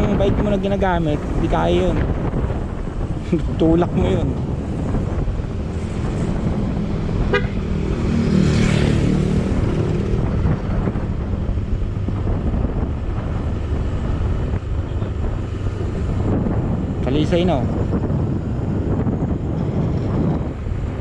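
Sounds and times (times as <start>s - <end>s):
wind rumble on microphone: 0.0s - 21.0s
motor vehicle passing: 0.8s - 17.0s.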